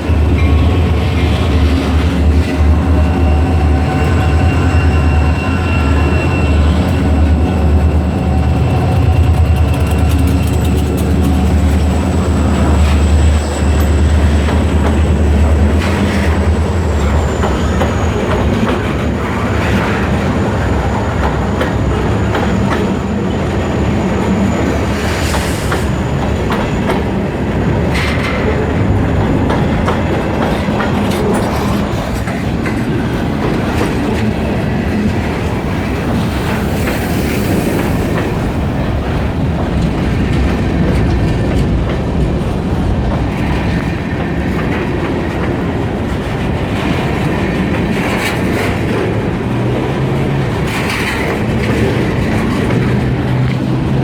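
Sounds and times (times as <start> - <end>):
diesel locomotive drone: 0.0 - 54.0
wheels clacking over rail joints: 0.0 - 54.0
high wheel squeal: 1.9 - 27.1.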